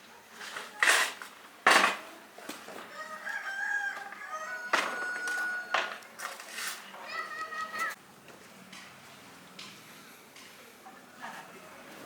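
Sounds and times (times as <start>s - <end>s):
rooster crowing: 2.9s - 6.0s.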